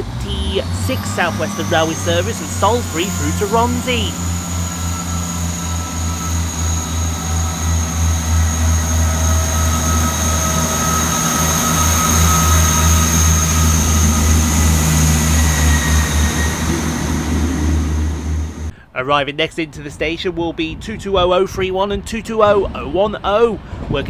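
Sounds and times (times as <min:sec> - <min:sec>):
steady high whine: 0:00.0 - 0:18.7
diesel train engines throbbing: 0:00.0 - 0:19.0.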